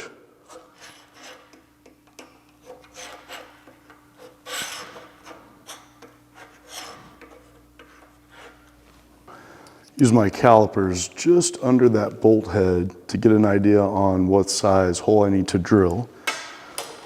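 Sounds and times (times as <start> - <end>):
metal scratching on metal: 0.4 - 8.7.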